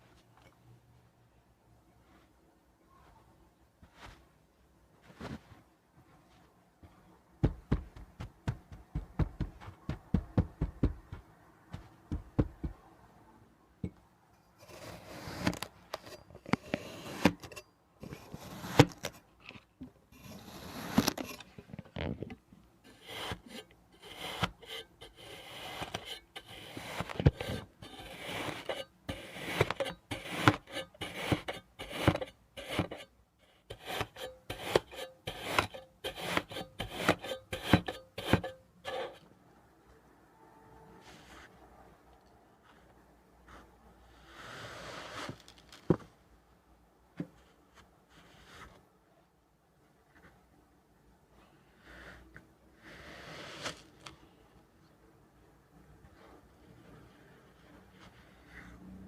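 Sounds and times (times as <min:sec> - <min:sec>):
knife cutting kinetic sand: 0:14.6 - 0:17.5, 0:18.1 - 0:19.2, 0:20.2 - 0:21.4, 0:22.9 - 0:39.2, 0:44.2 - 0:45.7, 0:51.8 - 0:54.2.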